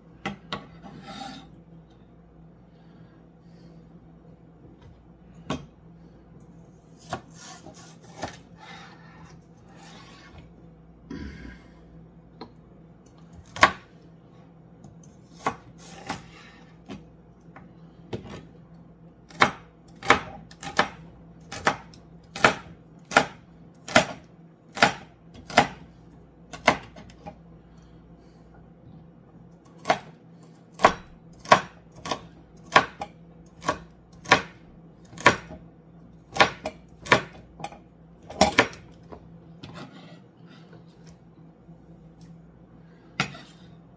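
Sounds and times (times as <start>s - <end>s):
knife chopping on cutting board: 7.0s - 8.4s, 13.4s - 13.9s, 19.3s - 25.8s, 26.5s - 27.1s, 29.8s - 30.1s, 30.8s - 35.6s, 36.3s - 38.8s.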